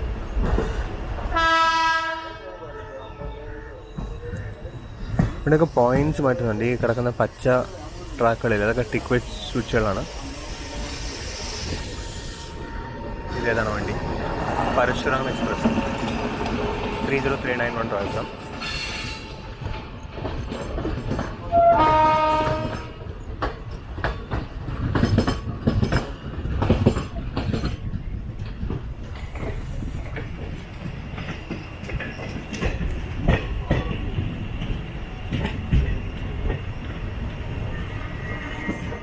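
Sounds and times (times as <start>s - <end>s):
train horn: 1.3s - 3.3s, 21.5s - 23.0s
train running rumble: 3.6s - 39.0s
train wheels knocking over rail joints: 14.4s - 37.0s.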